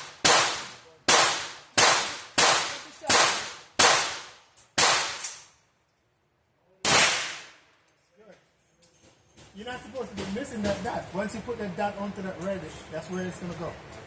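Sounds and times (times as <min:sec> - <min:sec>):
rifle gunshots with echo: 0:00.0 - 0:05.3, 0:06.8 - 0:07.6.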